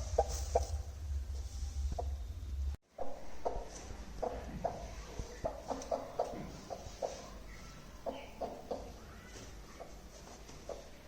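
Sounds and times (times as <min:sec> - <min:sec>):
low steady hum: 0:00.0 - 0:11.0
hen clucking softly: 0:03.0 - 0:10.0.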